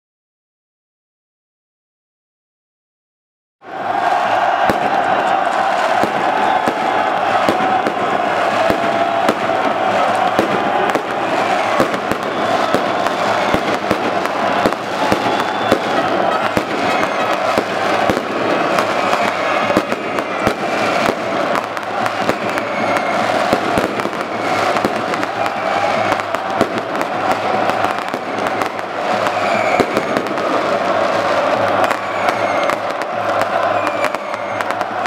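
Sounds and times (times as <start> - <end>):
crowd celebrating: 3.6 - 35.0
fireworks and firecrackers banging: 3.7 - 35.0.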